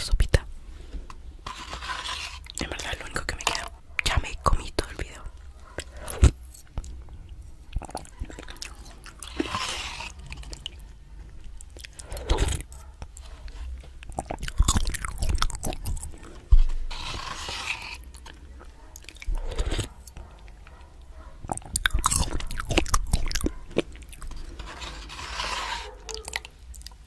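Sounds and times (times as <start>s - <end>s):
chewing noodles: 5.4s - 27.0s
wet mouth clicks: 14.0s - 16.3s, 19.0s - 20.6s, 21.4s - 24.4s.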